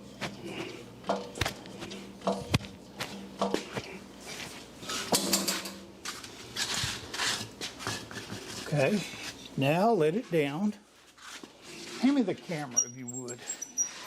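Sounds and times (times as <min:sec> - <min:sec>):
knocks and clinks of metal and wood: 0:01.0 - 0:03.9, 0:05.0 - 0:05.8.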